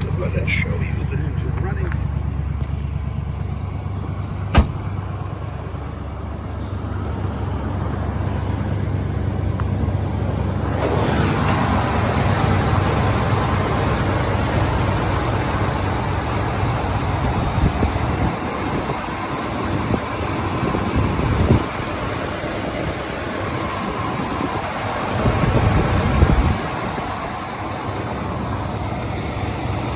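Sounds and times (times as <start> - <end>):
car engine idling: 0.0 - 29.9
sharp knock: 4.5 - 4.9.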